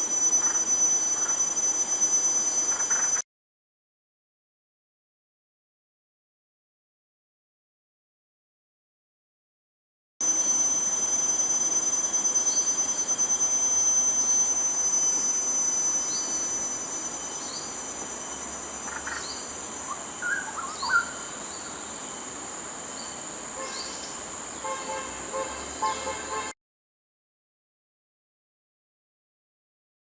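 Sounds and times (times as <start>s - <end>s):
high-pitched insect trilling: 0.0s - 3.2s, 10.2s - 26.5s
short rising chirp: 0.0s - 3.2s, 10.2s - 22.4s
whistled bird notes: 14.2s - 22.2s.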